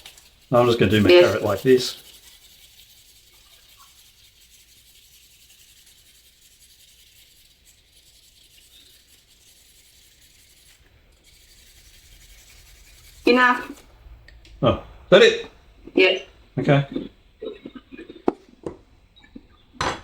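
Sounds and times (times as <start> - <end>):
carrot being shredded by hand: 0.0 - 13.8.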